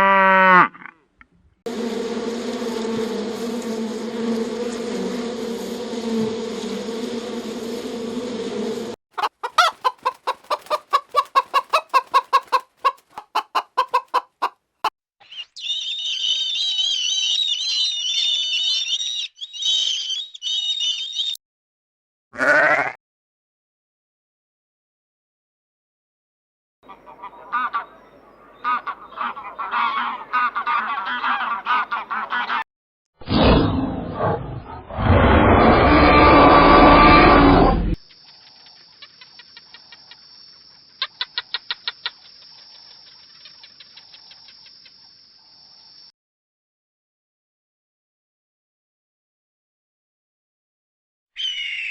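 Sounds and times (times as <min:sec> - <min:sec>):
buzzing hum: 0:01.7 - 0:09.0
birds honking: 0:09.2 - 0:14.2, 0:26.9 - 0:32.6
chicken clucking: 0:09.2 - 0:14.6
rough animal sound: 0:33.2 - 0:38.0.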